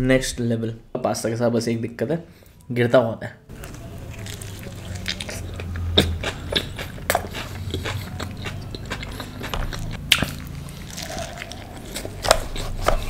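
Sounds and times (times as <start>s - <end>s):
biting and chewing pizza: 3.5s - 13.0s.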